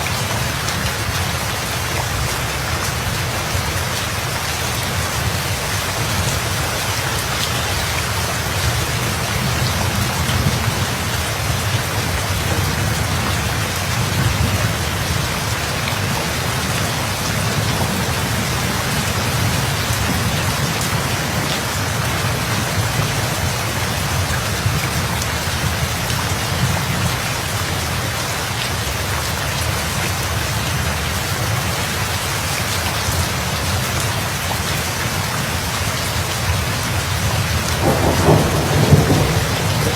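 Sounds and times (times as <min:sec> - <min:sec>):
steady rain: 0:00.0 - 0:39.9
low rumble of thunder: 0:09.4 - 0:27.2, 0:37.2 - 0:39.9.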